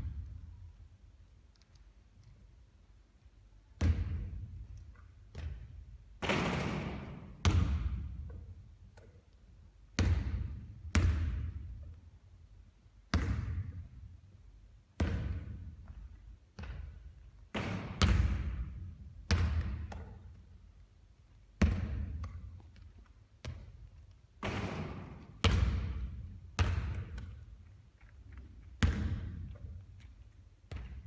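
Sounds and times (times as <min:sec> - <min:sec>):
basketball bouncing with echo: 0:03.8 - 0:04.6, 0:05.3 - 0:08.6, 0:10.0 - 0:11.9, 0:13.1 - 0:14.0, 0:15.0 - 0:16.0, 0:16.6 - 0:20.5, 0:21.6 - 0:22.8, 0:23.4 - 0:27.6, 0:28.8 - 0:29.9, 0:30.7 - 0:31.0.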